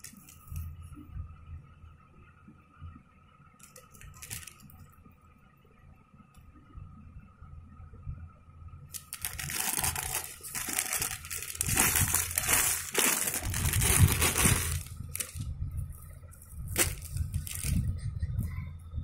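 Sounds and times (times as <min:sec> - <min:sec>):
sharp packaging crinkles: 0:03.6 - 0:04.7, 0:08.9 - 0:15.5, 0:16.7 - 0:17.8
packaging rustling and crumpling: 0:04.0 - 0:04.7, 0:08.9 - 0:15.5, 0:16.7 - 0:17.8.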